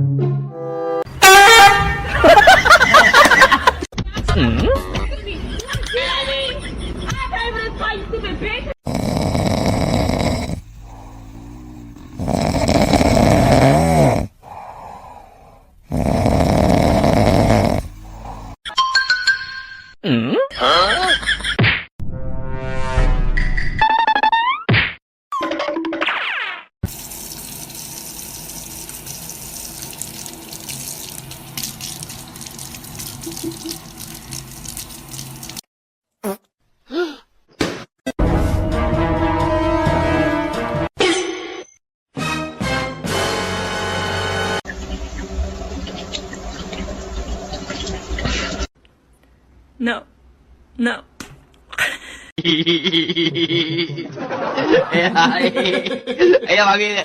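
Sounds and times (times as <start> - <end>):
pet snoring: 8.8 - 18.6
quiet breathing: 10.4 - 12.2, 14.3 - 15.9, 17.6 - 18.6
running water rushing: 26.8 - 35.6.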